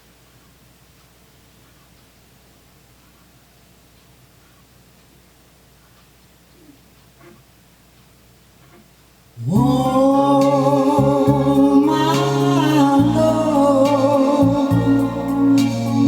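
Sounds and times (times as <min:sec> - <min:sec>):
music with singing from cassette: 0:09.5 - 0:16.0.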